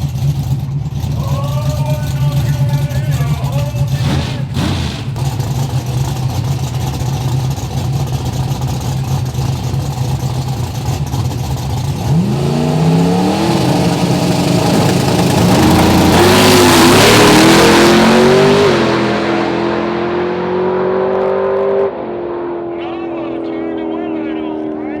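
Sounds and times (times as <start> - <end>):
truck engines revving and accelerating: 0.0 - 25.0.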